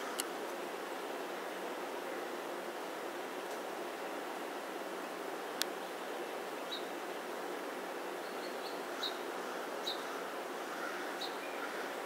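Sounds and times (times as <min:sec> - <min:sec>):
steady background hiss: 0:00.0 - 0:12.0
songbird chirping: 0:08.1 - 0:12.0.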